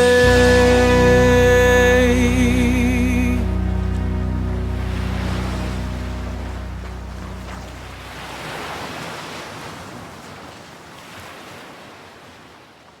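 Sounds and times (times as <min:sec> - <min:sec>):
background music: 0:00.0 - 0:08.1
ocean surf breaking: 0:00.0 - 0:12.1.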